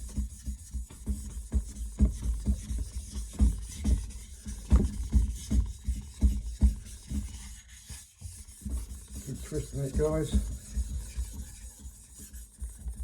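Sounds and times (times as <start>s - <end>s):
plate scraping over whetstone: 8.8s - 11.9s.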